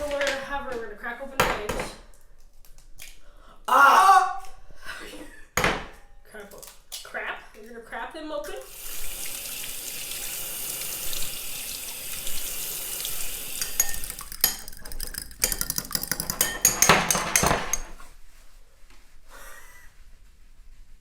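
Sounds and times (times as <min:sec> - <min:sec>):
tap water running into sink: 0:08.6 - 0:17.9
dishes and utensils clinking: 0:13.4 - 0:18.1.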